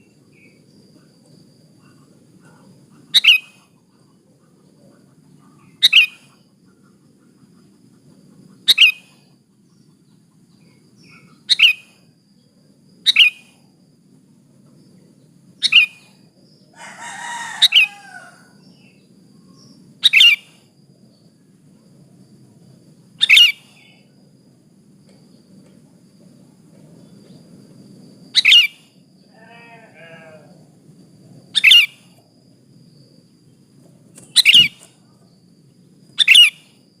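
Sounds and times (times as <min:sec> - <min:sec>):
longer lower bird call: 0:01.8 - 0:09.4, 0:13.0 - 0:13.6, 0:15.6 - 0:20.6, 0:23.2 - 0:24.1, 0:28.3 - 0:30.7, 0:31.5 - 0:32.2, 0:34.2 - 0:35.2, 0:36.2 - 0:36.9
bulbul sharp calls: 0:01.8 - 0:12.1, 0:13.0 - 0:13.6, 0:15.6 - 0:16.2, 0:16.8 - 0:20.6, 0:23.2 - 0:24.0, 0:28.3 - 0:30.6, 0:31.6 - 0:32.2, 0:34.2 - 0:35.0, 0:36.1 - 0:36.8.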